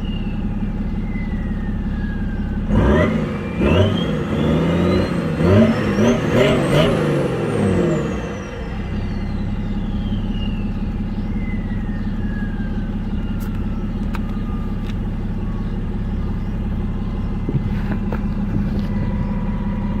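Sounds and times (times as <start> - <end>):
faint high whistle: 0.0 - 2.6, 8.6 - 16.6
diesel engine idling: 0.0 - 20.0.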